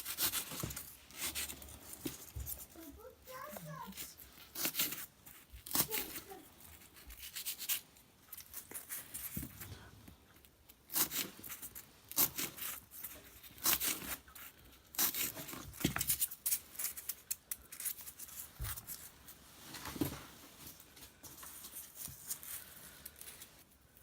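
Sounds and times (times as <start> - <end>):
material tearing by hand: 0.0 - 2.2, 4.0 - 7.8, 10.8 - 18.3.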